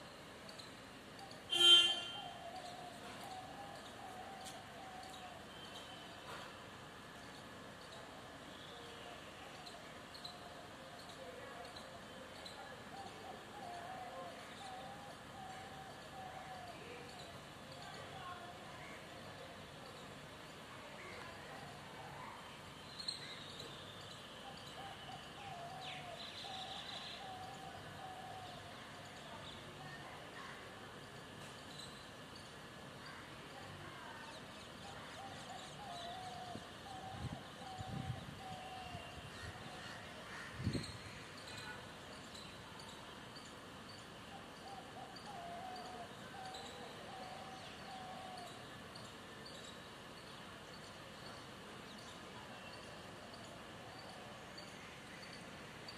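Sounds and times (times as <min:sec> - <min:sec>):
outdoor background noise: 0:00.0 - 0:55.9
faint bird chirps: 0:07.2 - 0:55.9.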